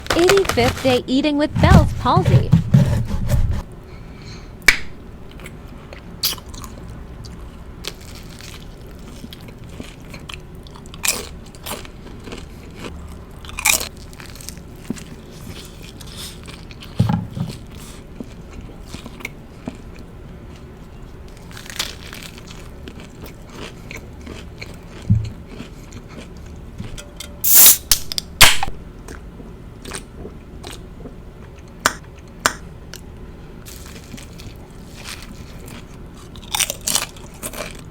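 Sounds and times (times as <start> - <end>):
crisp crunches: 0.0 - 1.1, 21.4 - 23.8, 33.7 - 37.9
chewing a sandwich: 5.3 - 27.0, 28.9 - 37.9.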